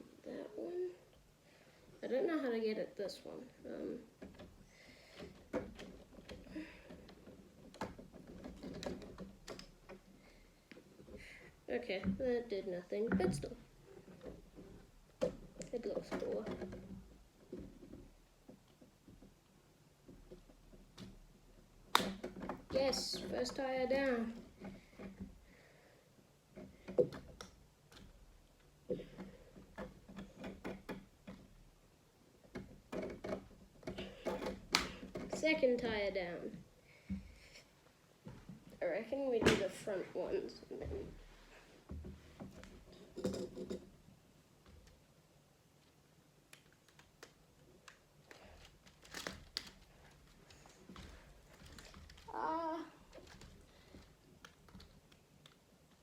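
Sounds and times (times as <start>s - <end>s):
plastic parts clicking: 4.1s - 11.2s, 13.1s - 25.4s, 32.4s - 35.9s, 45.8s - 56.0s.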